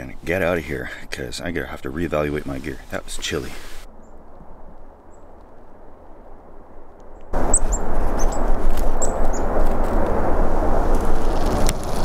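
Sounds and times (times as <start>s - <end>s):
small birds chirping: 7.4s - 9.4s.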